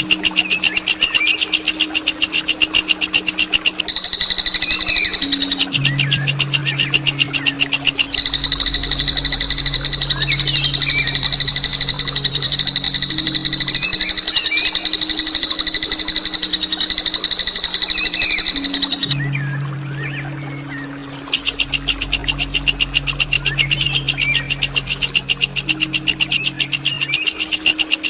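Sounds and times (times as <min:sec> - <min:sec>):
rapid buzzing trill: 0:00.0 - 0:19.2, 0:21.3 - 0:28.0
faint bird chirps: 0:00.0 - 0:28.0
low steady hum: 0:00.0 - 0:28.0.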